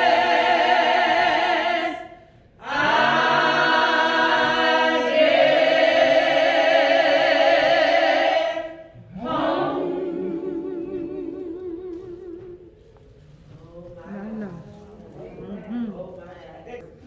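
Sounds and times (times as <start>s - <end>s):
choir singing held chord: 0.0s - 11.6s.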